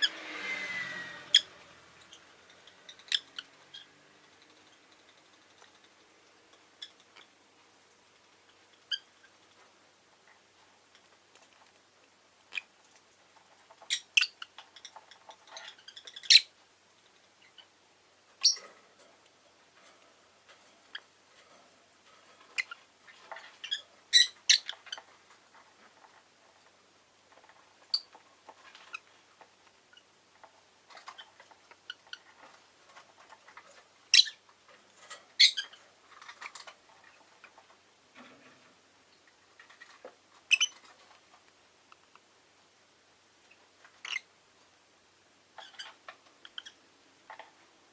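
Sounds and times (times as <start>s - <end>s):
soft ticking and clicking: 2.0s - 16.2s.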